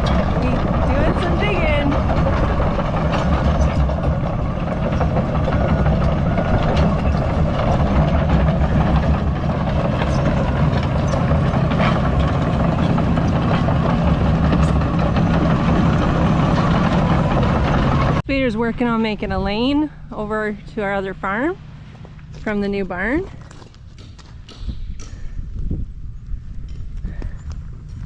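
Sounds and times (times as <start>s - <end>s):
excavator diesel engine running: 0.0s - 18.2s, 20.2s - 24.3s
faint metal clanks: 1.9s - 17.7s.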